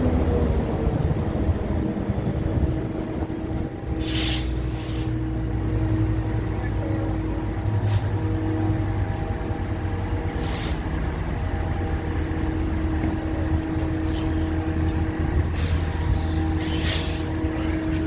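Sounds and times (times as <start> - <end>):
train rumbling: 0.0 - 18.0
air hissing: 4.0 - 5.1, 15.6 - 17.3.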